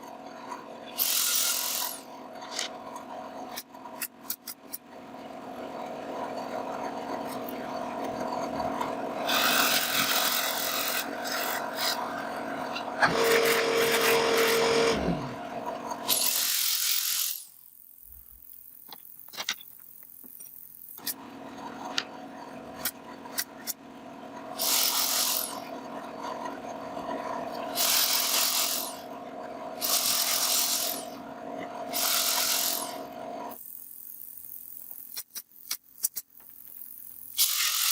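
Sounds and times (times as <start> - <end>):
rasping strokes on wood: 5.8 - 15.7.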